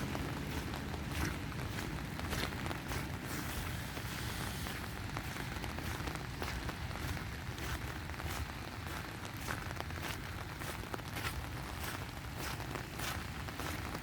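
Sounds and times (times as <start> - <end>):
low rumble: 0.0 - 7.6
steady rain falling: 0.0 - 14.0.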